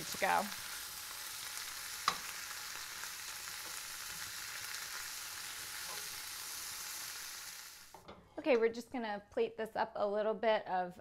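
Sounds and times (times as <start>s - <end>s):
vegetables sizzling in hot oil: 0.0s - 8.1s.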